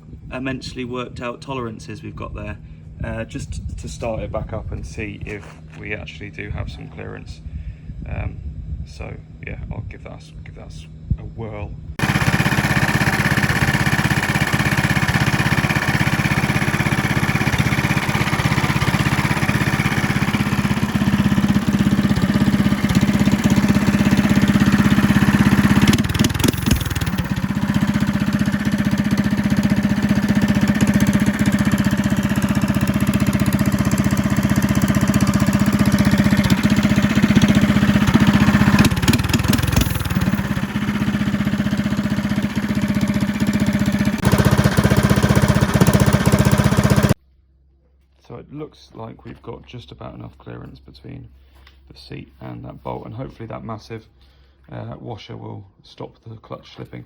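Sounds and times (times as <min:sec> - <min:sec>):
go-kart engine running: 0:12.0 - 0:47.2.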